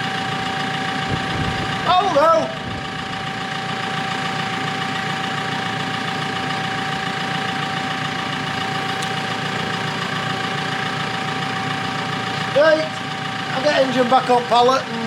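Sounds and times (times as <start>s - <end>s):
constant high whine: 0.0s - 15.0s
machine engine idling: 0.0s - 15.0s.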